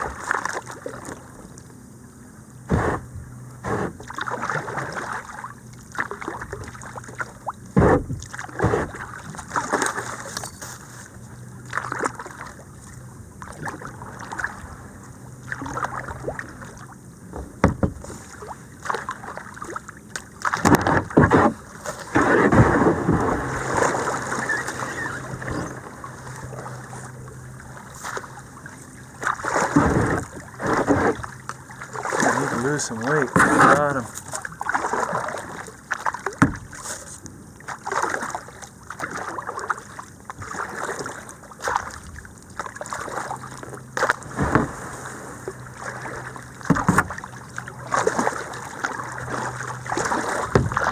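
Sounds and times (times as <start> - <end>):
kayak paddle splashes: 0.0 - 50.9
knocks on kayak: 2.7 - 4.0, 7.7 - 9.0, 17.3 - 18.1, 36.4 - 36.7, 44.3 - 44.8, 46.6 - 47.2, 50.5 - 50.9.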